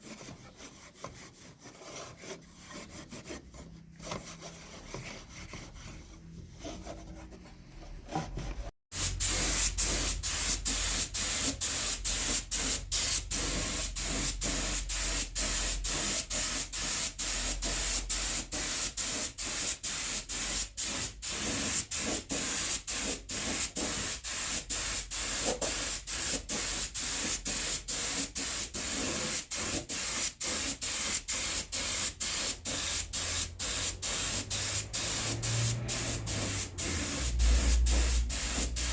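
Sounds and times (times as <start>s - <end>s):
faint workshop sounds: 0.0s - 38.9s
spray gun hissing: 8.9s - 15.7s, 29.5s - 38.9s.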